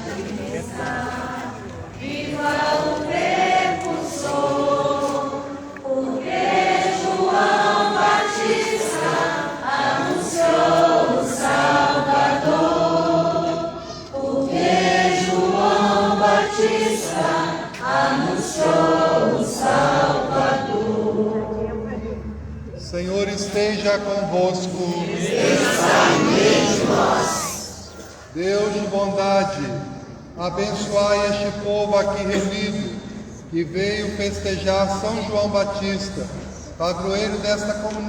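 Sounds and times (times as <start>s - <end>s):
congregation singing a hymn: 0.0s - 22.1s, 23.0s - 38.0s.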